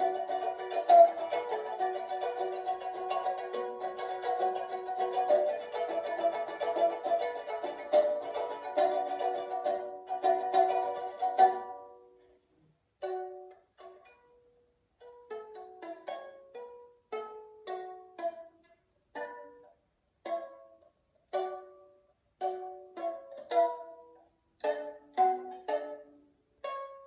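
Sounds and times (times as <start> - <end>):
strummed lyre chord: 0.0 - 12.2
lyre being plucked: 0.0 - 12.4, 13.0 - 27.0.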